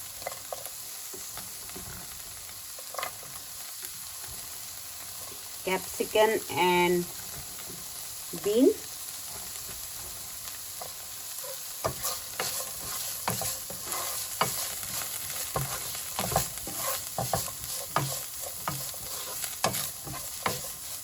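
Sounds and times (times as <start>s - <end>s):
vegetables sizzling in hot oil: 0.0s - 21.0s
spatula scraping and knocking pan: 9.2s - 21.0s.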